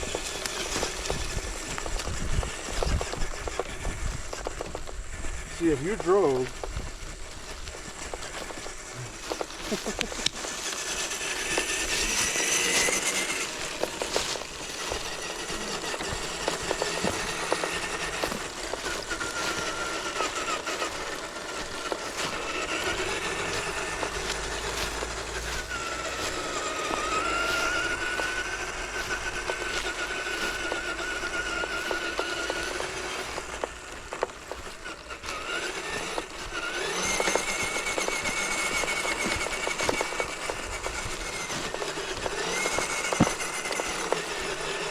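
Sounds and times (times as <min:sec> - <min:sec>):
small electric motor whining: 0:00.0 - 0:44.9
clicks and crackles: 0:06.1 - 0:35.3.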